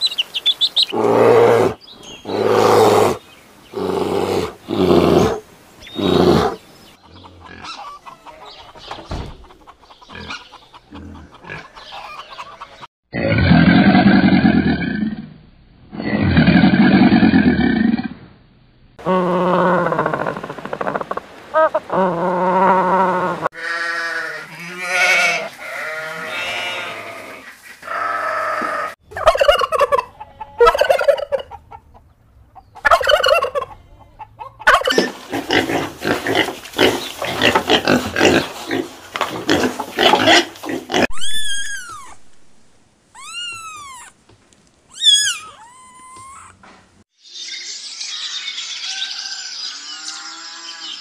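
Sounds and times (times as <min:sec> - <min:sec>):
turkey gobbling: 0:07.0 - 0:08.8, 0:09.4 - 0:12.9, 0:28.6 - 0:35.2
kitten mewing: 0:43.2 - 0:44.2, 0:44.9 - 0:46.6.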